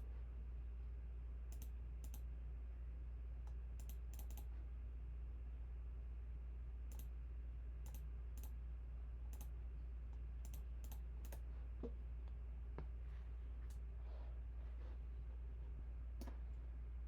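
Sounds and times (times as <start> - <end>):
low electrical hum: 0.0 - 17.0
computer mouse clicks: 1.5 - 2.3, 3.5 - 4.5, 6.9 - 7.1, 7.8 - 8.6, 9.3 - 9.5, 10.4 - 11.4.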